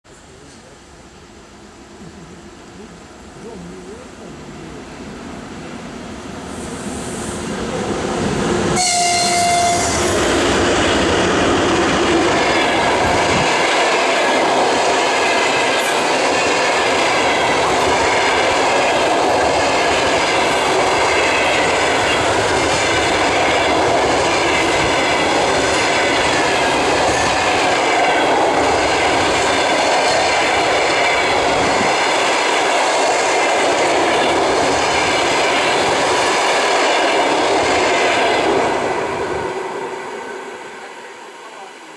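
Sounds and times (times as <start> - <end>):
train wheels on rails rushing: 3.2 - 41.7
locomotive horn blast: 8.8 - 10.2.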